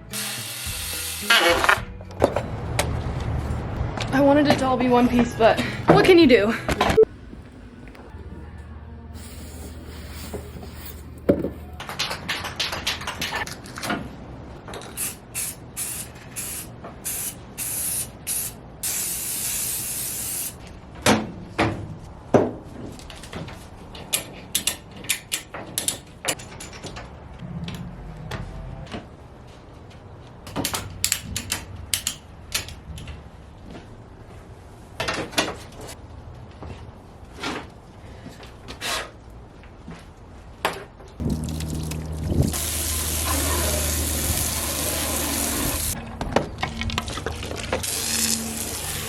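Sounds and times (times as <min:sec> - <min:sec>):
short hissing bursts: 0:09.2 - 0:10.9, 0:15.0 - 0:20.6.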